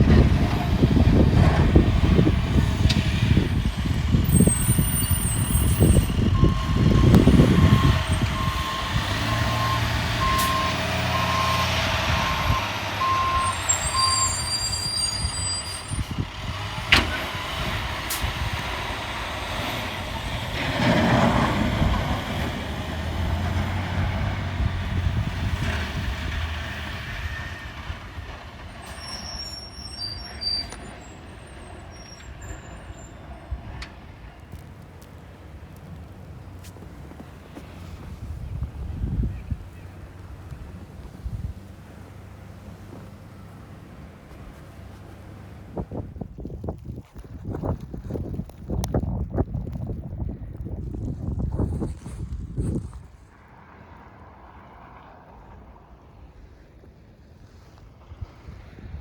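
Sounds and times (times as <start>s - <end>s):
truck engine running: 0.0s - 53.3s
reversing beeper: 4.3s - 16.0s.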